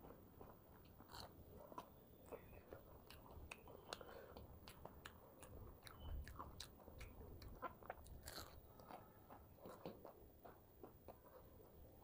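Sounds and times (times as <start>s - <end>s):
chewing with wet mouth clicks: 0.8s - 11.3s.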